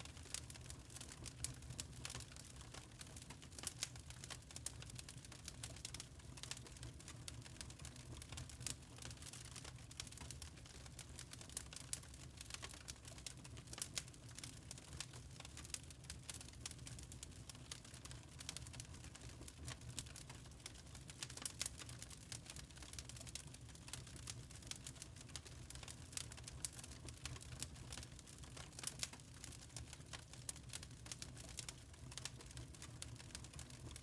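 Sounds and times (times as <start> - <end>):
charcoal crackling and popping: 0.0 - 34.0.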